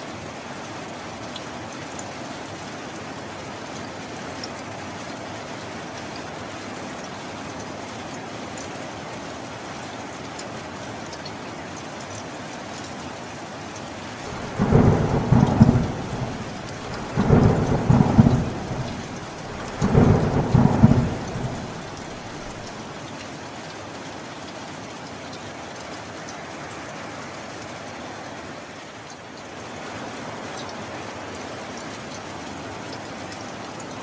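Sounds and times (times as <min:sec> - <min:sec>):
steady rainfall: 0:00.0 - 0:34.0
thunder rolling: 0:14.3 - 0:22.7.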